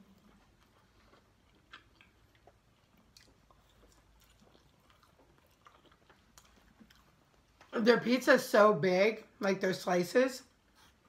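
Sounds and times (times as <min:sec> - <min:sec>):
faint chewing: 0:00.0 - 0:07.8.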